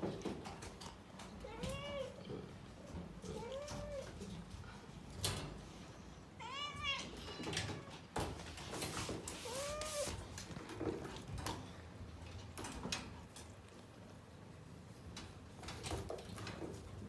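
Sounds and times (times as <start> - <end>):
cat meowing: 1.4 - 2.3, 6.4 - 8.0, 9.4 - 10.2.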